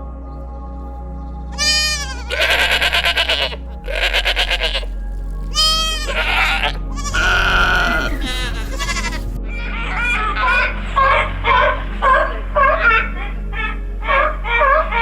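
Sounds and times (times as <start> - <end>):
background music: 0.0 - 15.0
goat or sheep bleating: 1.6 - 9.3.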